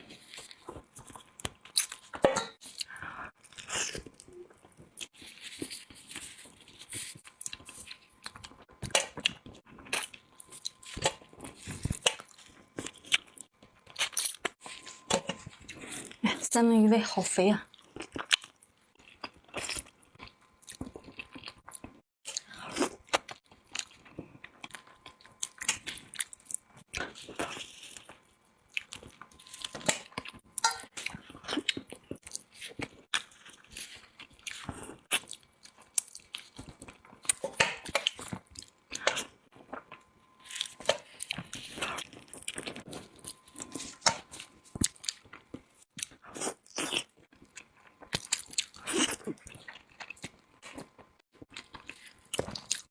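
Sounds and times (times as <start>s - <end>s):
person chewing food: 0.0s - 16.2s, 17.7s - 52.9s.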